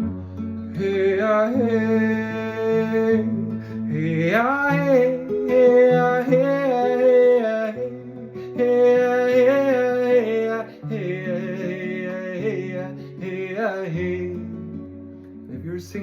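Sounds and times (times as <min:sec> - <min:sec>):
person singing long notes: 0:00.8 - 0:14.4.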